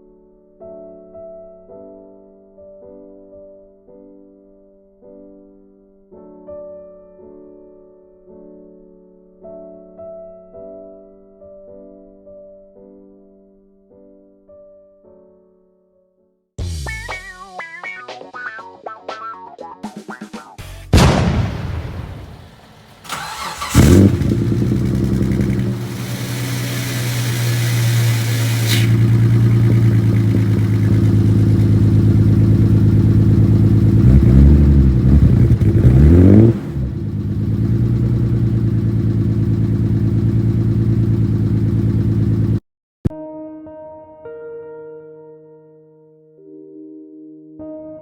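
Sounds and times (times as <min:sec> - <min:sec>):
engine idling: 0:22.1 - 0:42.6
engine revving: 0:22.1 - 0:42.6
engine cranking and starting: 0:22.3 - 0:42.6.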